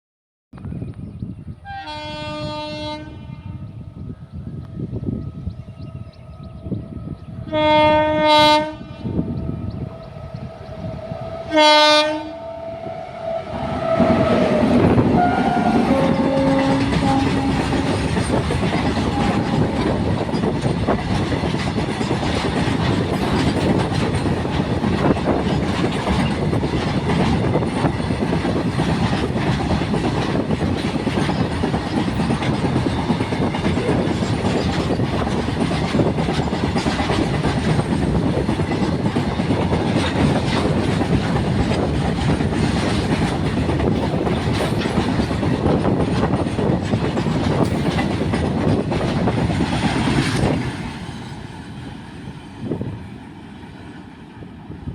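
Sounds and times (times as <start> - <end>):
freight train rumbling past: 0.7 - 54.9
train horn: 1.6 - 3.8, 6.4 - 20.0
wheels clattering over rail joints: 15.5 - 51.8.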